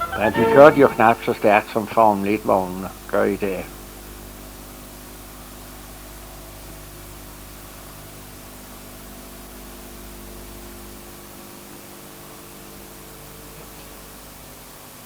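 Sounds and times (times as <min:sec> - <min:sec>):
low steady hum: 0:00.0 - 0:04.8
steady hiss: 0:00.0 - 0:15.0.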